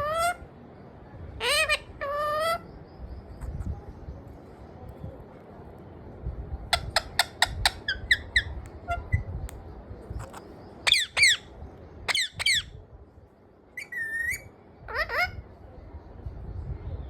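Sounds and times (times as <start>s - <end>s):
parrot squawking: 1.4s - 2.6s, 6.8s - 9.2s, 10.2s - 11.5s, 12.1s - 12.7s, 13.8s - 15.4s.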